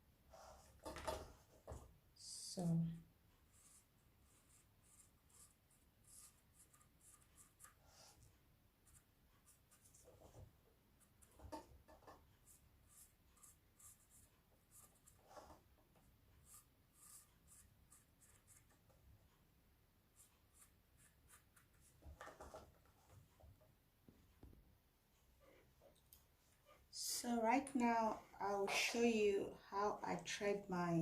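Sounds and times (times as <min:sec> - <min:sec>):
pen scratching on mesh: 0:03.5 - 0:08.2, 0:11.0 - 0:15.6, 0:16.4 - 0:18.9, 0:20.2 - 0:22.6.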